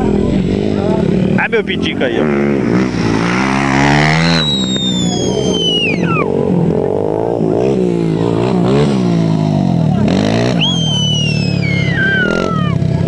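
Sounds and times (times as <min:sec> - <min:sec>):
dirt bike engines revving: 0:00.0 - 0:13.0
high whistle gliding down: 0:04.0 - 0:06.3, 0:10.6 - 0:12.8.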